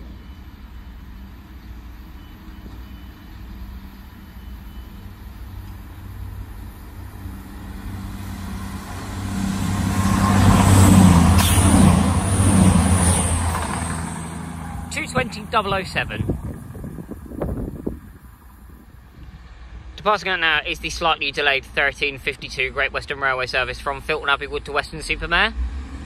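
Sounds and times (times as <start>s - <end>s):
idling diesel train hum: 0.0s - 26.0s
train passing at speed: 0.0s - 26.0s.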